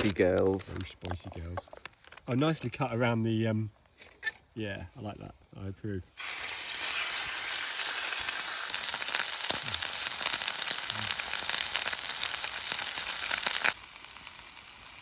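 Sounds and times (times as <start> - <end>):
food sizzling in a frying pan: 6.2 - 15.0.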